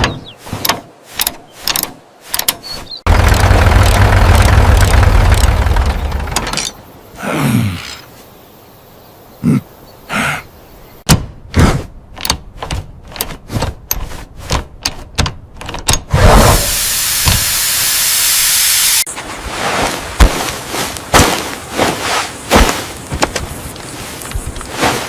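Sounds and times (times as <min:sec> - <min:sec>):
steady hiss: 0:16.4 - 0:19.5.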